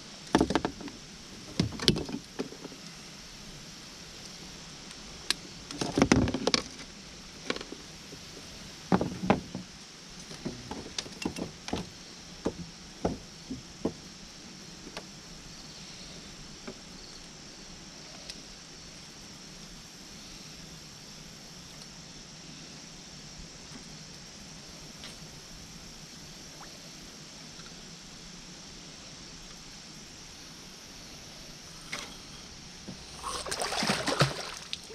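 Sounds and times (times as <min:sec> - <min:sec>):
steady background hiss: 0:00.0 - 0:34.9
irregular knocks and clattering thuds: 0:05.8 - 0:06.7, 0:08.9 - 0:09.7, 0:10.3 - 0:14.0.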